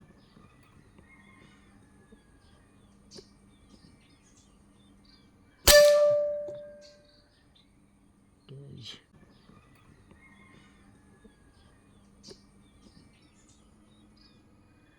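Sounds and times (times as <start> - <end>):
air rifle shot: 5.7 - 6.8.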